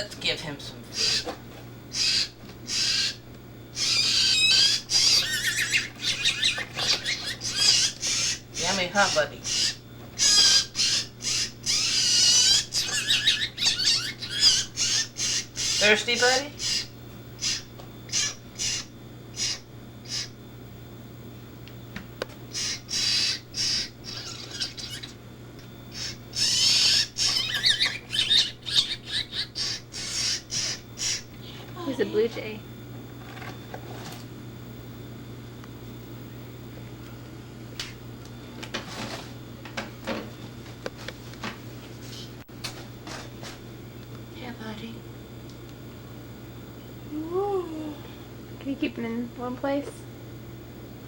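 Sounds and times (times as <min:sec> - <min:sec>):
blue jay squawking: 0:00.9 - 0:20.4, 0:22.5 - 0:25.2, 0:25.9 - 0:32.3.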